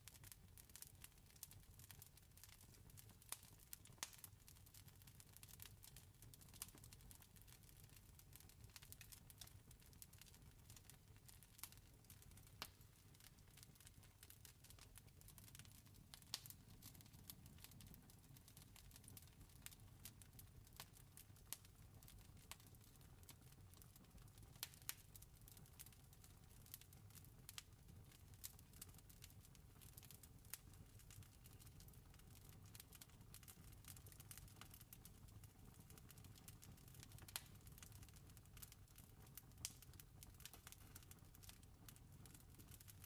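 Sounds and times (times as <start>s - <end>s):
campfire crackling and popping: 0.2s - 4.8s, 5.4s - 43.0s.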